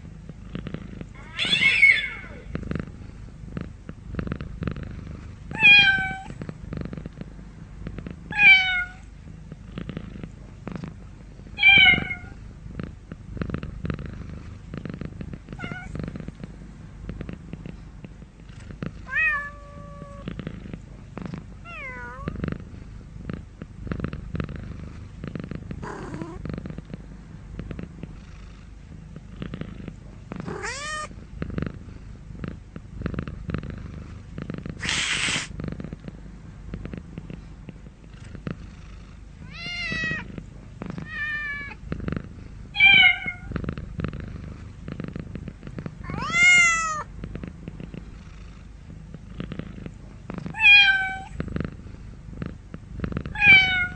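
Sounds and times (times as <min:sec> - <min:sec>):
cat purring: 0:00.0 - 0:53.9
cat meowing: 0:01.2 - 0:02.4, 0:05.6 - 0:06.3, 0:08.3 - 0:09.0, 0:30.5 - 0:31.1, 0:42.8 - 0:43.5, 0:46.0 - 0:47.1, 0:50.5 - 0:51.4, 0:53.3 - 0:53.9
brief noisy burst: 0:34.8 - 0:35.5.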